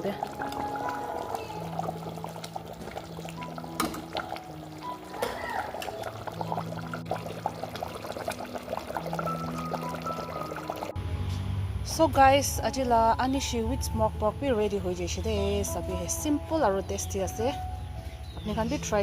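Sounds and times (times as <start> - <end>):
curry bubbling and crackling: 0.0 - 10.9
soft background music: 0.0 - 19.0.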